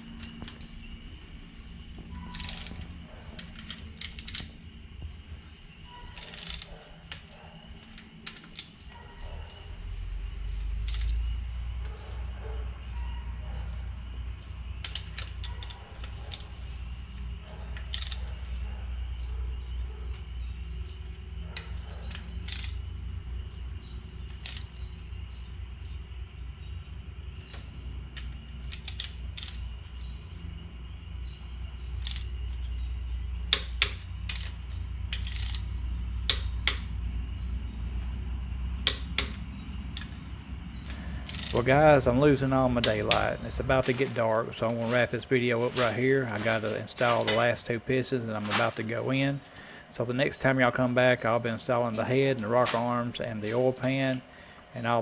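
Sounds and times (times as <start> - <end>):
low steady rumble: 0.0 - 55.0
torque wrench clicking: 2.2 - 4.6, 6.1 - 7.3, 8.2 - 8.8, 10.8 - 11.3, 14.8 - 16.6, 17.8 - 18.3, 22.4 - 22.9, 24.3 - 25.0, 28.2 - 29.7, 32.0 - 32.6, 33.5 - 36.9, 38.8 - 39.4, 40.9 - 41.7.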